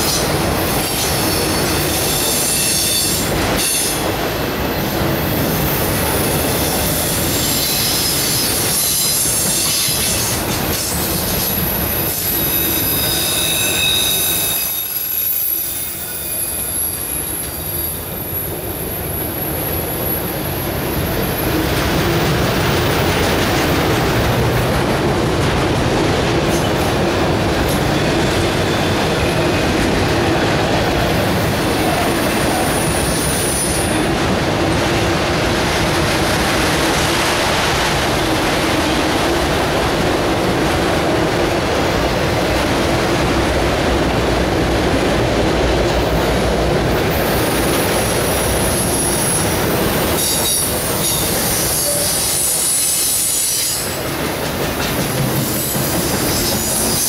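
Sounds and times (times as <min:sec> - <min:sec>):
freight cars rolling on rails: 0:00.0 - 0:57.0
high-pitched wheel squeal: 0:12.0 - 0:18.5, 0:50.2 - 0:53.9.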